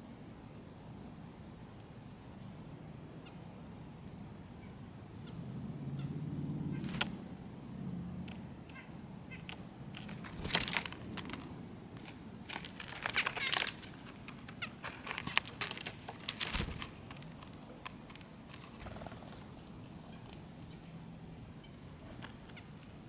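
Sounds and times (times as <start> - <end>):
small birds chipping and calling: 4.4 - 7.2, 8.2 - 23.0.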